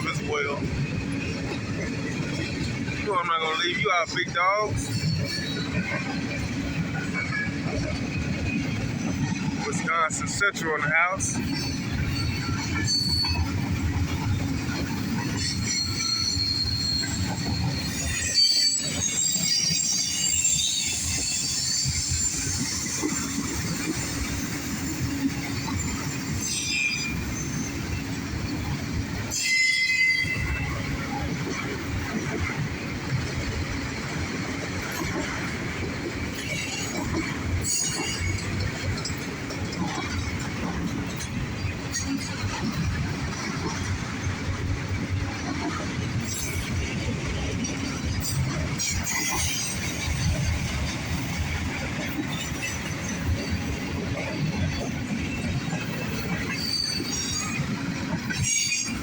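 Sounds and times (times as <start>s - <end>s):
sharp clanks of train cars: 0.0s - 59.0s
wheel squeal: 11.4s - 31.3s, 36.4s - 38.7s, 54.3s - 57.7s.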